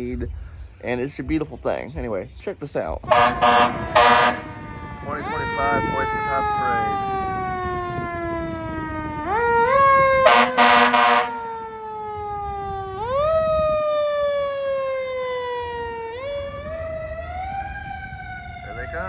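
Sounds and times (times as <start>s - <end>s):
air horn blast: 3.1s - 4.6s, 10.2s - 11.4s.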